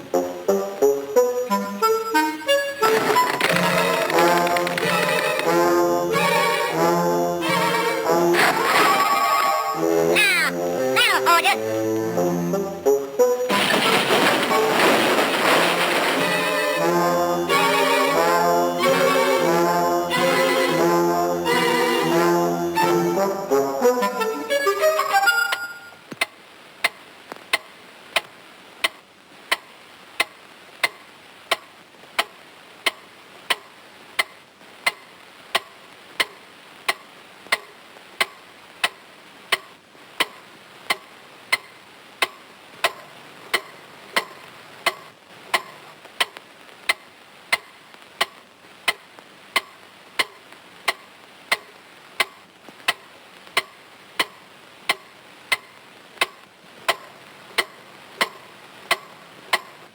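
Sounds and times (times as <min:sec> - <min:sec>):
clock ticking: 0:02.9 - 0:06.5, 0:26.2 - 0:49.0, 0:49.6 - 0:59.8.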